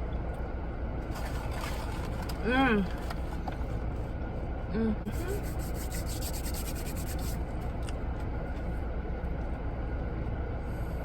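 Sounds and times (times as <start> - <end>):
low rumble inside car: 0.0 - 11.0
fast scratchy rubbing: 5.1 - 7.4.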